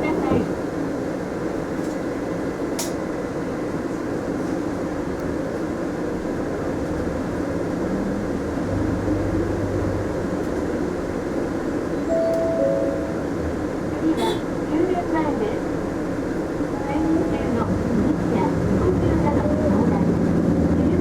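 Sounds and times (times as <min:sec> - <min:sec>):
bus engine and road noise: 0:00.0 - 0:21.0
brief tone: 0:12.0 - 0:13.6
short click: 0:12.2 - 0:12.6.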